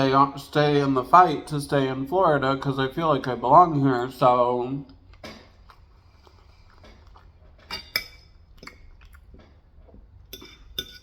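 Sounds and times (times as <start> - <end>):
chewing crunches: 4.9 - 10.2.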